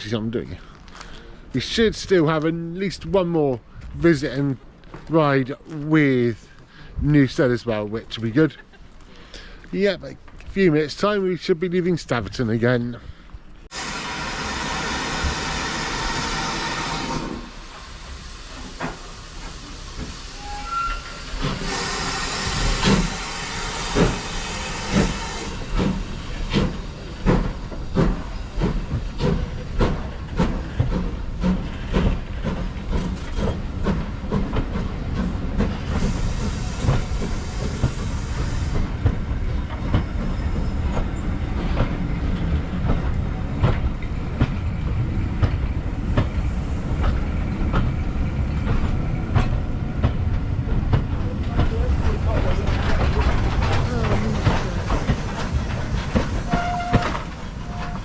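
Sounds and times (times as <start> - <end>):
locomotive exhaust chuffs: 13.6 - 58.0
steam hissing: 13.7 - 43.5, 45.9 - 58.0
train wheel knocks: 23.8 - 46.4, 47.0 - 58.0.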